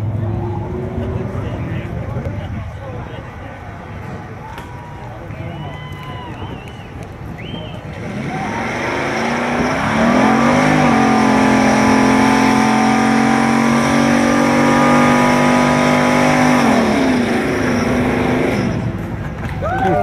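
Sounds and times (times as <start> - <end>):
tyres squealing on pavement: 4.5 - 13.2, 14.2 - 20.0
van engine revving: 7.9 - 19.2.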